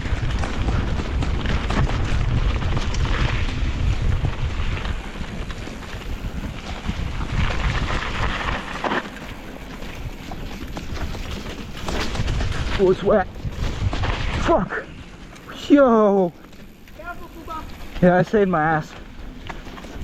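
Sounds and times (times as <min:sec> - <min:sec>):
wind buffeting microphone: 0:00.0 - 0:15.6
bike rattling clicks: 0:00.0 - 0:20.0
tyres on dirt: 0:00.0 - 0:20.0.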